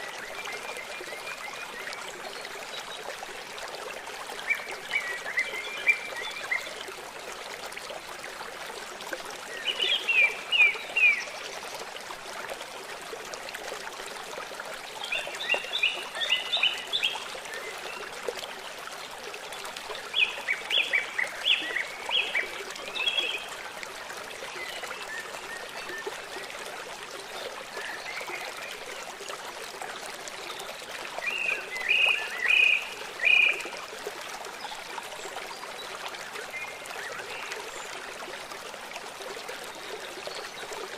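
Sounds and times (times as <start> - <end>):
stream water flowing: 0.0 - 40.9
songbird singing: 31.2 - 33.6.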